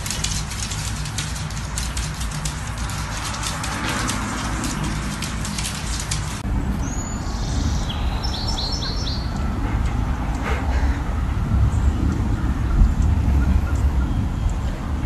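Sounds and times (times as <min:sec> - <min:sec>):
crackly hiss with clicks: 0:00.0 - 0:06.4
small birds chirping: 0:00.0 - 0:15.0
steady low rumble: 0:00.0 - 0:15.0.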